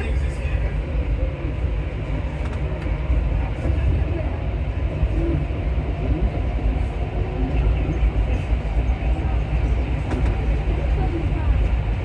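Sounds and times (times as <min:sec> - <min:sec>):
metro train rumbling: 0:00.0 - 0:12.0.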